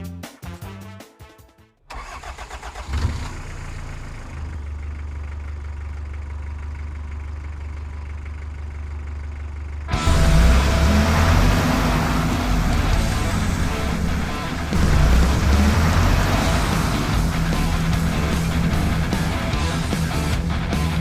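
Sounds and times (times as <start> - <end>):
truck engine starting and idling: 1.8 - 21.0
music notes: 9.9 - 21.0.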